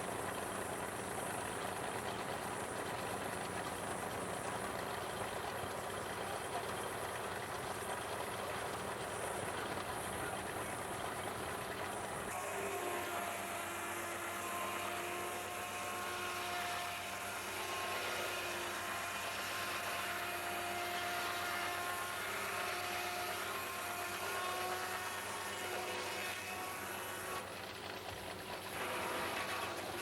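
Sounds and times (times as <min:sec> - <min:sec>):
broad mechanical noise: 0:00.0 - 0:30.0
circular saw whining: 0:12.3 - 0:27.5, 0:28.8 - 0:30.0.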